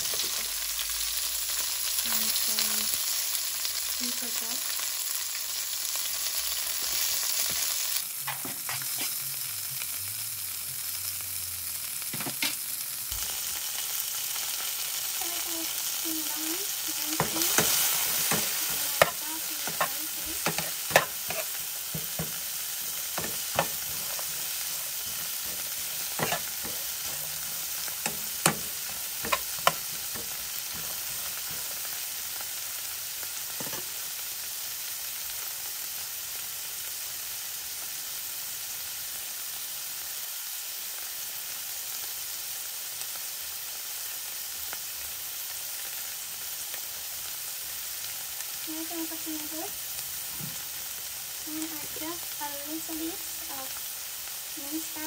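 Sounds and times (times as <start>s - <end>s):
onion sizzling in oil: 0.0s - 55.0s
utensil scraping pan: 17.2s - 32.0s.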